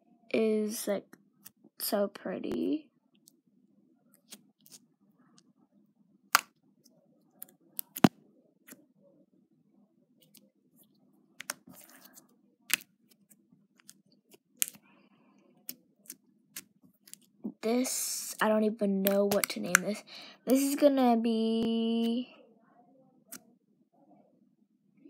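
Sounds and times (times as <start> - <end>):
slime squished by hand: 11.4 - 14.8, 19.0 - 19.8.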